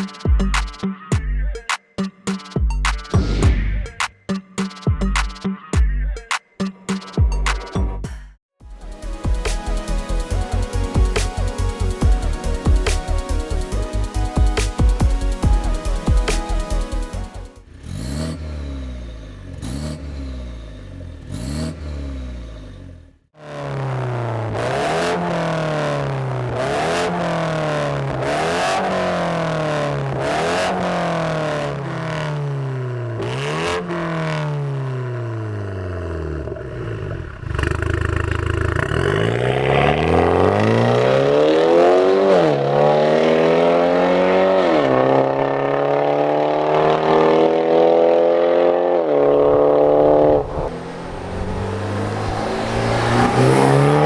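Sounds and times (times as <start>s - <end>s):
car engine accelerating hard: 17.1s - 54.0s.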